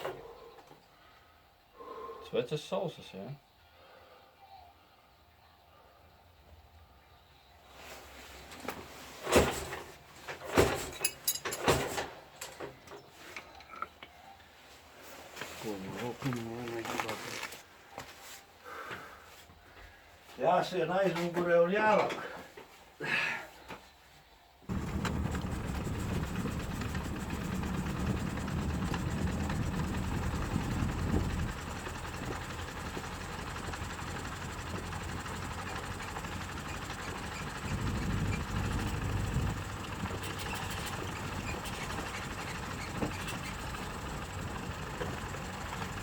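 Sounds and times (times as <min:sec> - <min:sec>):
vehicle engine running: 0:24.7 - 0:46.0.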